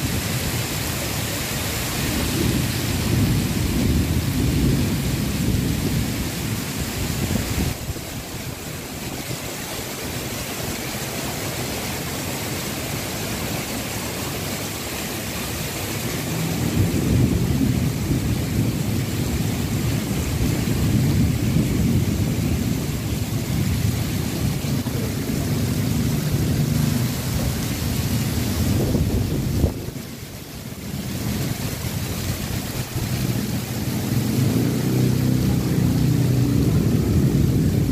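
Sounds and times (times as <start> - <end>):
heavy rain pouring: 0.0 - 37.9
wind buffeting microphone: 1.9 - 9.6, 16.2 - 37.9.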